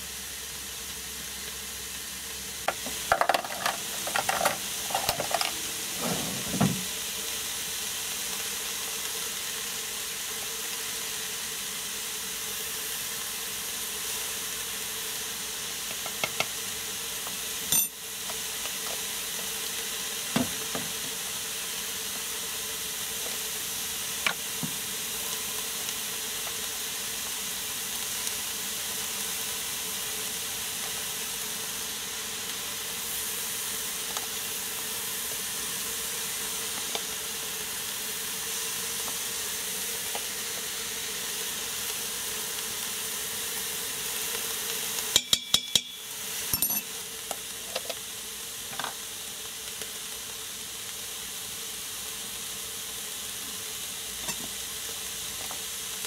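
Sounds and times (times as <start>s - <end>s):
vegetables sizzling in a pot: 0.0s - 56.0s
metal spoon clinking: 17.7s - 17.9s, 45.2s - 46.0s, 46.6s - 46.9s.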